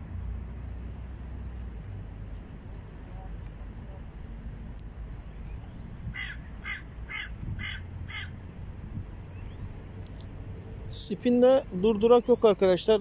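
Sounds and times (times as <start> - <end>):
bird harsh calls: 6.0 - 8.5.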